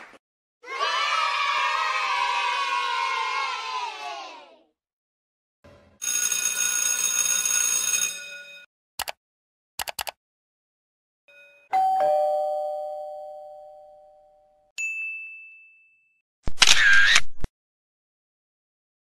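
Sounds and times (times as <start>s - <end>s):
two-tone doorbell chime: 11.3s - 16.2s.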